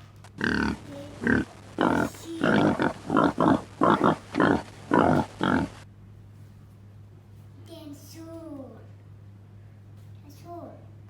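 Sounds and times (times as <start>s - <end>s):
pig grunting and oinking: 0.4s - 5.8s.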